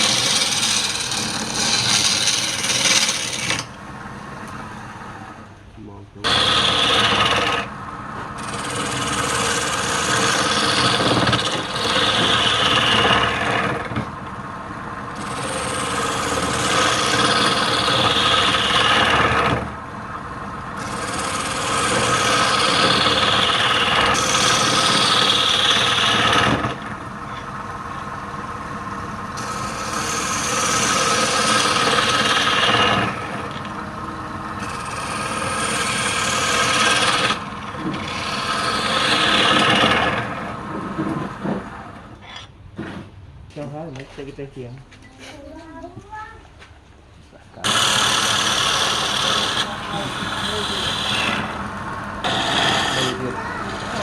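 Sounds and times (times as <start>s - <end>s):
turning tool scraping wood: 0.0s - 3.7s, 6.3s - 7.7s, 8.3s - 14.1s, 15.1s - 19.8s, 20.8s - 27.5s, 29.4s - 43.1s, 47.6s - 54.0s
lathe running: 0.0s - 5.6s, 6.3s - 42.1s, 47.6s - 54.0s.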